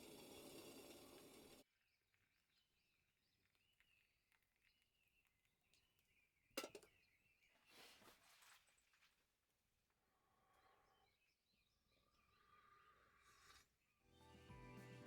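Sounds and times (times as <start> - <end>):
hiss: 0.0 - 1.6.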